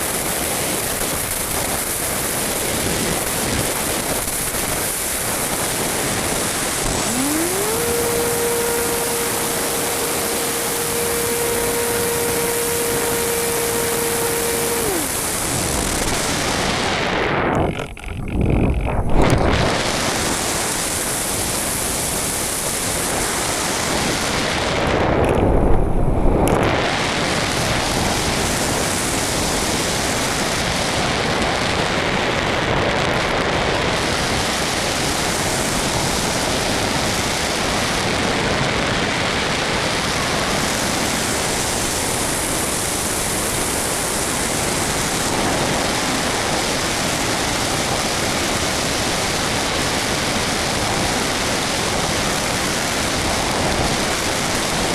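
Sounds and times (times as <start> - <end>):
rushing airflow over camera: 0.0 - 29.7
deep wind buffeting: 0.1 - 54.9.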